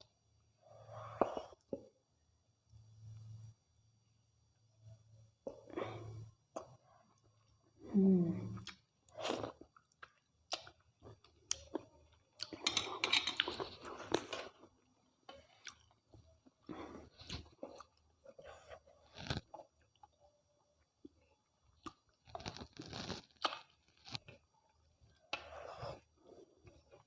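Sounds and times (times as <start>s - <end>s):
person humming: 7.9s - 8.6s.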